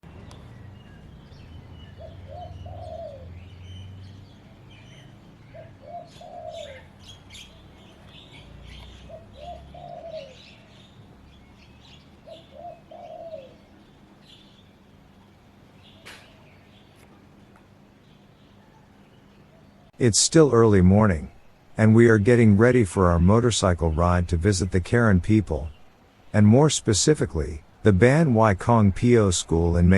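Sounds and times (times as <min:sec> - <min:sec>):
high chirps of small birds: 0:00.1 - 0:20.0.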